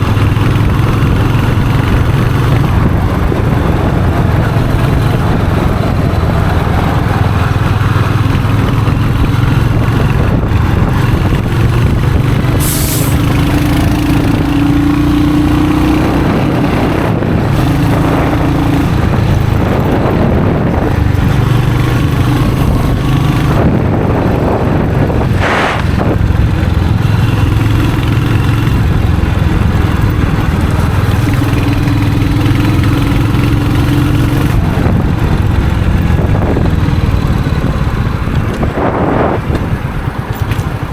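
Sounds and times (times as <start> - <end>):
motorcycle engine and exhaust: 0.0 - 40.9
brief hiss: 12.6 - 13.2.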